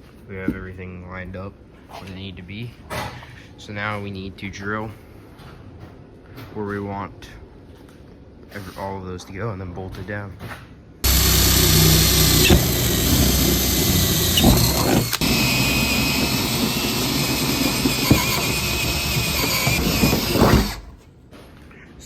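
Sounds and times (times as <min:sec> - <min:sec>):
power drill boring through metal: 0:11.0 - 0:21.0.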